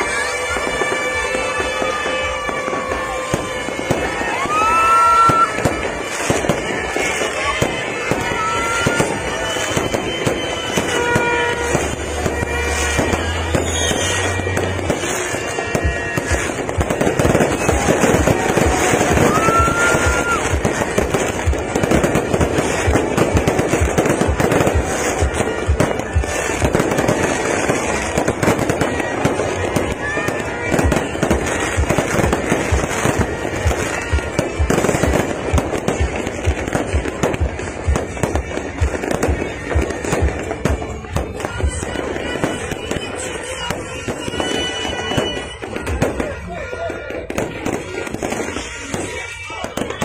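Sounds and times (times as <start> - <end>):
fireworks banging: 0.0 - 50.0
fireworks crackling: 0.0 - 50.0
music playing: 0.0 - 50.0.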